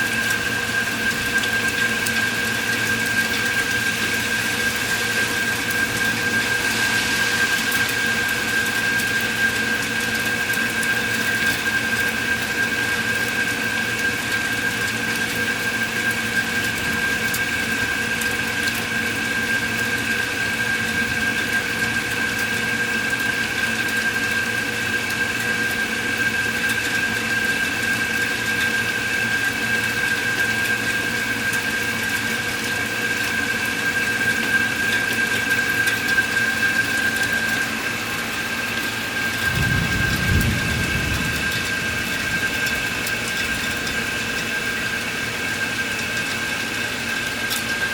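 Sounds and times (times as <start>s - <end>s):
steady rain: 0.0s - 47.9s
high-pitched drone: 4.0s - 9.7s
distant thunder rumble: 39.2s - 44.7s.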